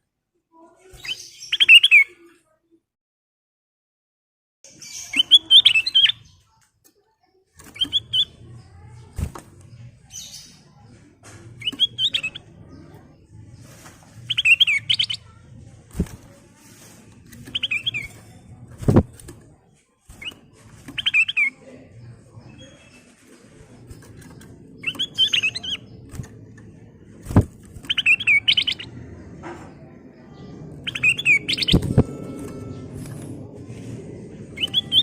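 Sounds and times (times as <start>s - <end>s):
bulbul singing warbled phrases: 4.7s - 6.4s, 7.7s - 9.3s, 11.6s - 12.7s, 14.3s - 18.3s, 20.1s - 22.9s, 23.9s - 26.4s, 27.3s - 29.0s, 30.8s - 33.2s, 34.6s - 35.0s.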